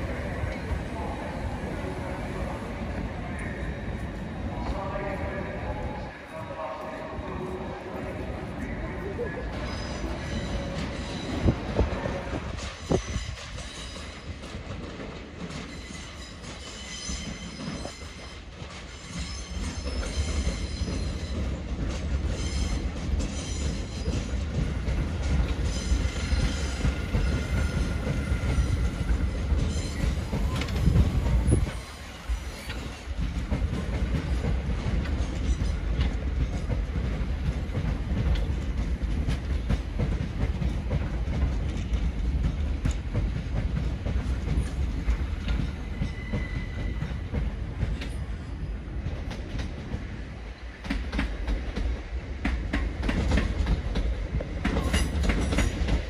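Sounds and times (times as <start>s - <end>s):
low rumble of train: 0.0s - 56.0s
train wheels squealing: 9.4s - 14.4s, 15.5s - 33.3s, 34.2s - 35.9s, 44.5s - 48.8s.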